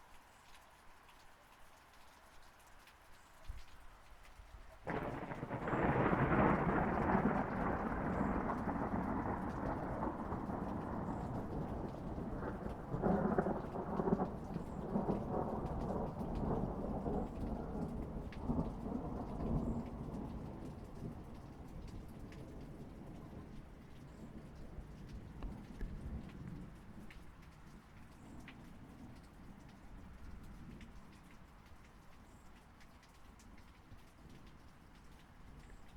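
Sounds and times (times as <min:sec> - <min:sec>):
steady rain: 0:00.0 - 0:35.9
thunder rumbling: 0:04.9 - 0:27.1.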